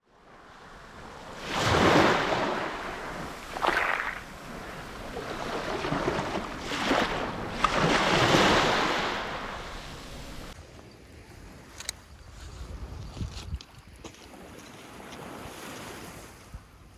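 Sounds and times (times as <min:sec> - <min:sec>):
sea waves breaking on beach: 0:00.1 - 0:10.6.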